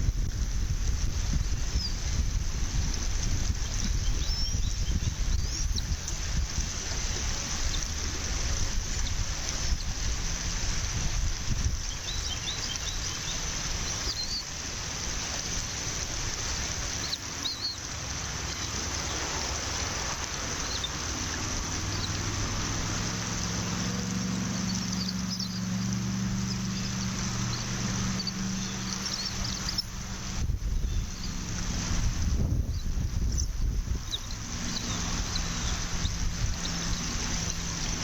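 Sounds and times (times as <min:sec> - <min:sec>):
low steady hum: 0:00.0 - 0:38.0
wind on microphone: 0:00.0 - 0:38.0
high bird chirps: 0:24.4 - 0:30.0, 0:32.7 - 0:38.0.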